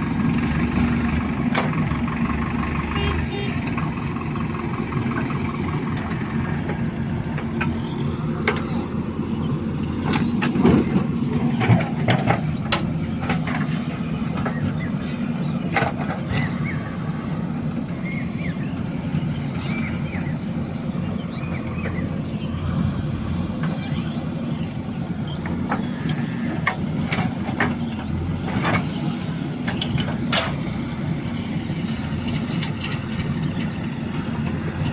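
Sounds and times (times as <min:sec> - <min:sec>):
heavy machinery diesel engine: 0:00.0 - 0:34.9
metallic clanks and knocks: 0:10.1 - 0:13.7.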